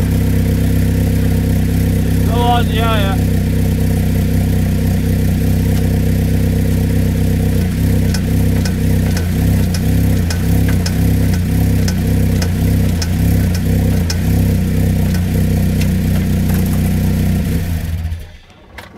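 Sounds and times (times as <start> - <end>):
car engine running: 0.0 - 18.4
sharp engine knocking: 7.6 - 17.0.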